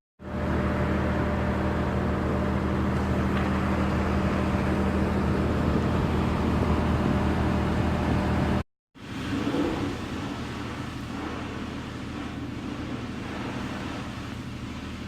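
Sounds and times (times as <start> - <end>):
water spray hiss: 9.0 - 15.0.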